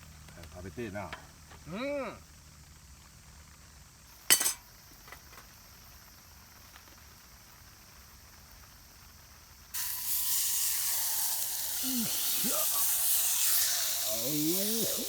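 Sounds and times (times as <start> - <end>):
steak sizzling in a hot pan: 3.8 - 15.0.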